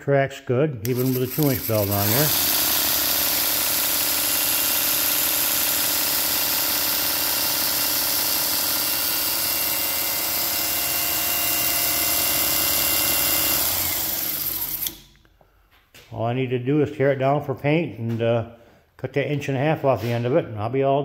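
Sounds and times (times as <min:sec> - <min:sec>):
belt grinder whirring: 0:00.8 - 0:15.1
motor hum: 0:00.8 - 0:15.1.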